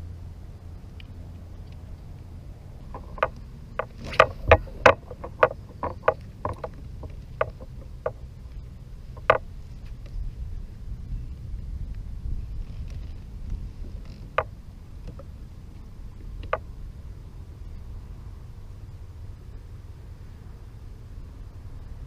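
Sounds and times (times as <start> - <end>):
water: 0.0 - 9.7, 12.7 - 22.0
wind: 0.0 - 22.0
knocks and taps on kayak: 2.9 - 8.2, 9.2 - 9.4, 16.4 - 16.6.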